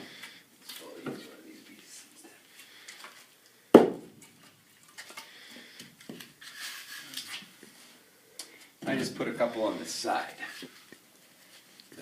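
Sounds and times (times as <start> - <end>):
wooden knocks of firewood: 3.8 - 4.1
rustling and scraping of wood: 4.3 - 8.0.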